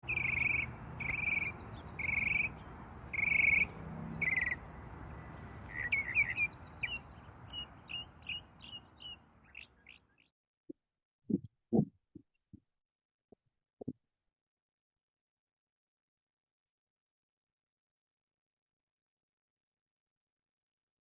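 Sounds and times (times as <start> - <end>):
low outdoor background noise: 0.0 - 10.2
bird call: 0.0 - 10.3
bird chirps: 0.0 - 10.3.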